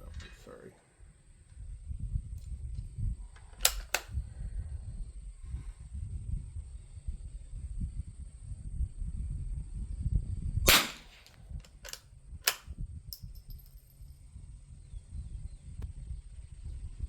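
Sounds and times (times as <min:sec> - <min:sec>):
metallic bolt clicks: 0:03.4 - 0:04.1, 0:10.7 - 0:13.8
rifle shot crack: 0:10.7 - 0:11.4.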